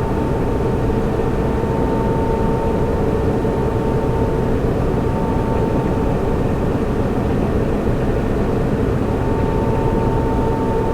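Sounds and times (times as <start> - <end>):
constant pitched hum: 0.0 - 10.9
cooling fans rushing: 0.0 - 10.9.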